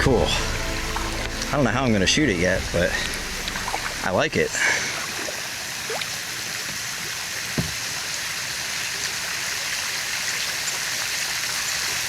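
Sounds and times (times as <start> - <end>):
small waterfall splashing: 2.7 - 12.0.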